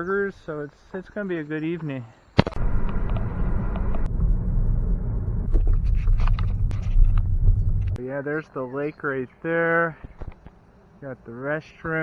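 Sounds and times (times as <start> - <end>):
car road and engine rumble: 2.6 - 8.0.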